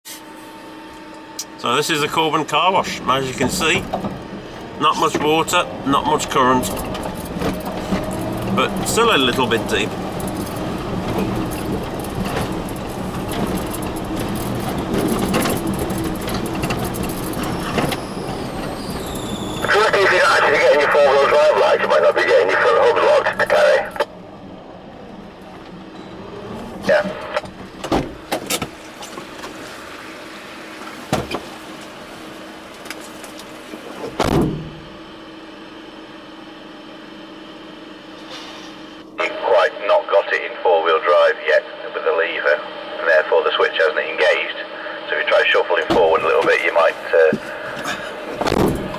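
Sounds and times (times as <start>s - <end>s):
vehicle engine running: 0.1s - 48.9s
vehicle knocks and rattles: 3.4s - 4.4s, 6.6s - 19.6s, 26.7s - 29.6s, 32.8s - 35.0s, 45.9s - 48.9s
loud thump: 34.1s - 34.8s, 48.4s - 48.9s.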